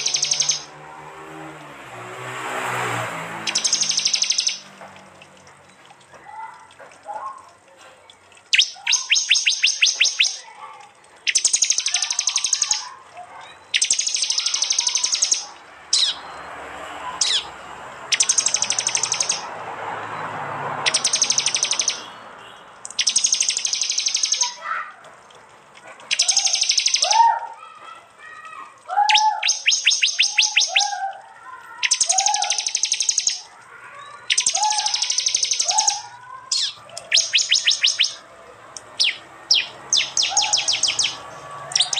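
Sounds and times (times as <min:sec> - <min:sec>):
bird ticking trills: 0:00.0 - 0:00.8, 0:02.8 - 0:16.6, 0:17.2 - 0:24.9, 0:25.9 - 0:27.4, 0:28.5 - 0:41.9
sharp down-slurred bird notes: 0:03.4 - 0:04.7, 0:08.5 - 0:10.5, 0:31.8 - 0:38.2, 0:39.0 - 0:41.9
faint bird chirps: 0:03.5 - 0:04.7, 0:08.5 - 0:10.5, 0:11.2 - 0:16.5, 0:20.9 - 0:24.6, 0:31.8 - 0:38.2, 0:39.0 - 0:41.2.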